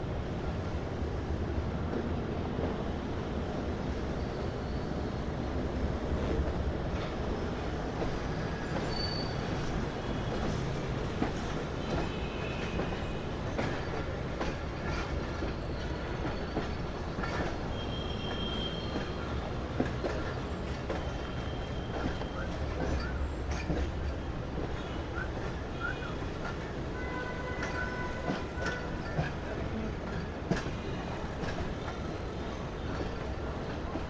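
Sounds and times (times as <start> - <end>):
train wheels rumbling on rails: 0.0 - 34.0
high-pitched wheel squeals: 8.6 - 9.7.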